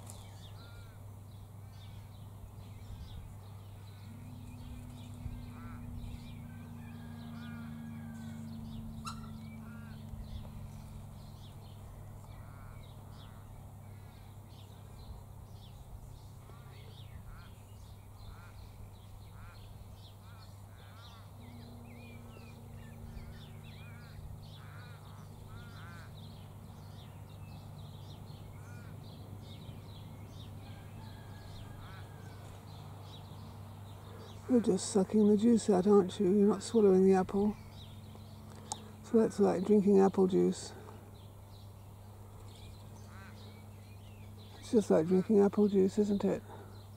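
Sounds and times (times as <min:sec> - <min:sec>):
birds giving harsh calls: 0:00.0 - 0:46.9
steady low hum: 0:00.0 - 0:46.9.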